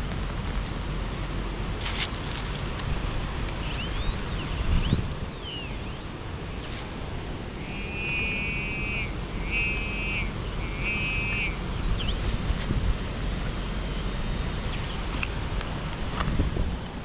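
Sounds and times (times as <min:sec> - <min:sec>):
wind rumble on microphone: 0:00.0 - 0:17.0
metal detector high beeps: 0:03.6 - 0:06.8, 0:07.6 - 0:15.4
metal detector tones: 0:07.6 - 0:16.2.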